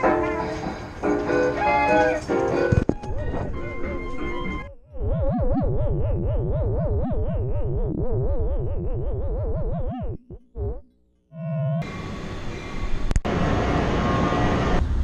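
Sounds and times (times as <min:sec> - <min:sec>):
warbling synthesizer tones: 0:02.7 - 0:11.9.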